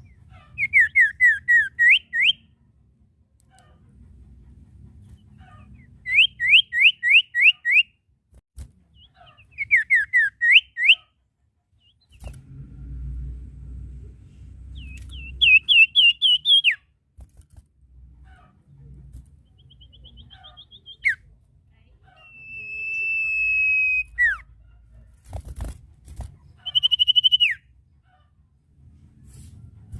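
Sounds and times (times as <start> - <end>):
songbird whistling: 0.0 - 2.5, 6.0 - 7.9, 9.0 - 11.0, 14.7 - 16.8, 19.5 - 21.2, 22.2 - 24.4, 26.6 - 27.7
low rumble: 12.3 - 15.5.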